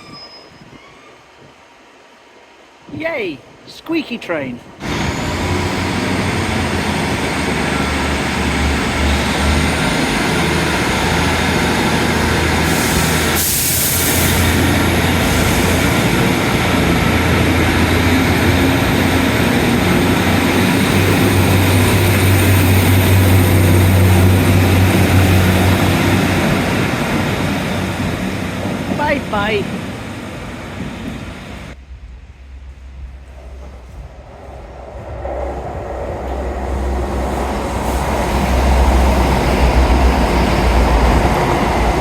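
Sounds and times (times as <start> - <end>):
faint high squeal: 0.0 - 1.3
train engines droning: 0.0 - 42.0.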